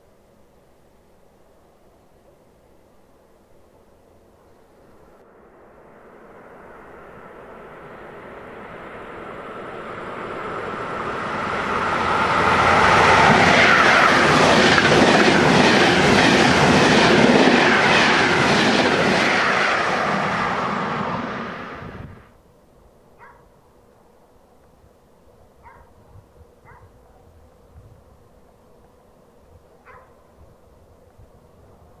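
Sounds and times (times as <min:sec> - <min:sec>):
train passing: 0:03.9 - 0:22.4.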